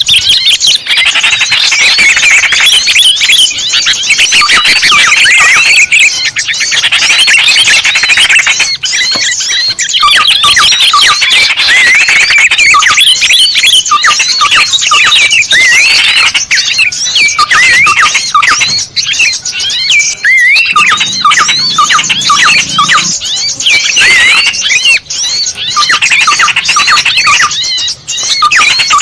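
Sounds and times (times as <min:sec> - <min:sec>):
small birds chirping and trilling: 0:00.0 - 0:29.0.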